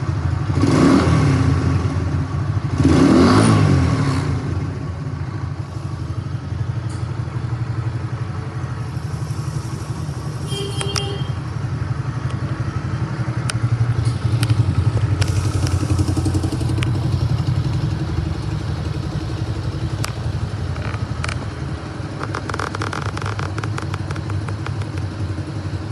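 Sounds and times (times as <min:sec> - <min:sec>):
motorcycle engine idling: 0:04.7 - 0:25.9.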